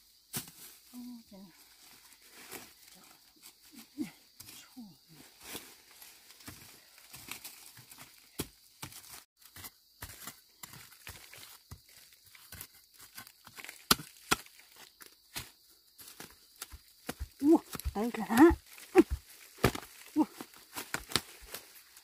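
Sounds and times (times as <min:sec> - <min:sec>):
leaves rustling and crinkling: 0:00.0 - 0:09.5, 0:10.1 - 0:22.0
plant stems snapping: 0:20.8 - 0:21.6.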